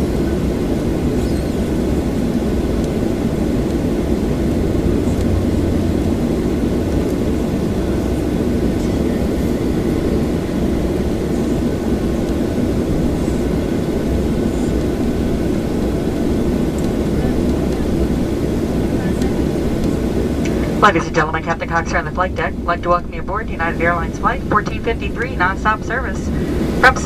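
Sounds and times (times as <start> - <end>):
low cabin drone: 0.0 - 27.0.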